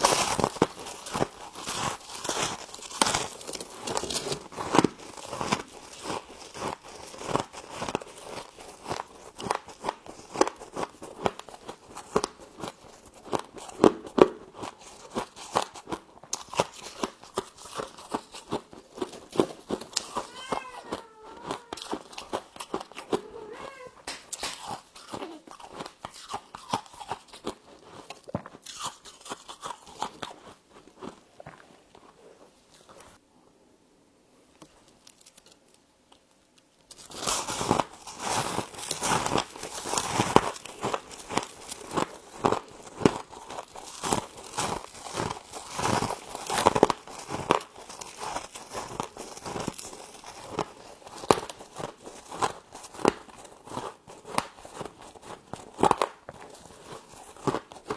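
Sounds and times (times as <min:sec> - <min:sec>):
crunching and chewing frost: 0:00.0 - 0:33.2, 0:34.5 - 0:57.9.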